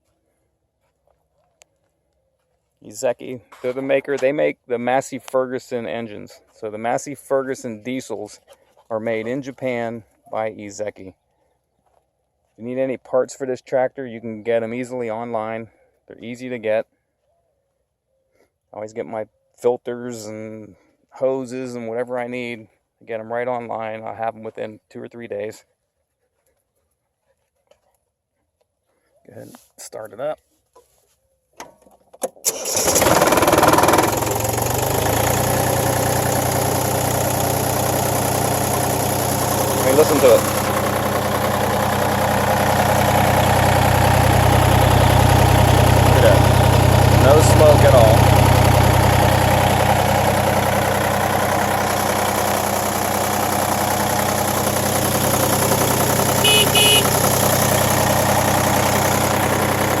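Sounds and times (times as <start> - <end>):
diesel engine starting and idling: 32.3 - 60.0
tractor horn beeps: 54.6 - 59.9.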